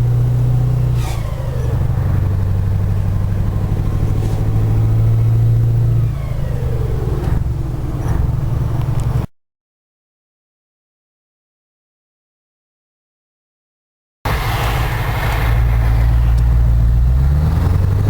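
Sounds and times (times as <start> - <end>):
diesel engine running under load: 0.0 - 9.3, 14.3 - 18.0
falling engine whine: 0.0 - 9.3, 14.3 - 18.0.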